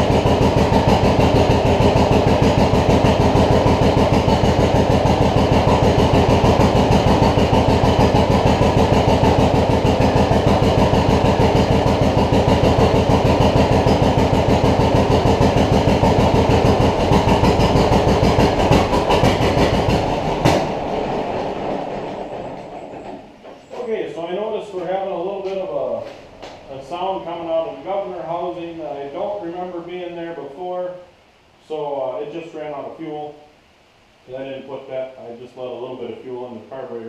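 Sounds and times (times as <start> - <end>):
tractor engine popping: 0.0 - 23.8.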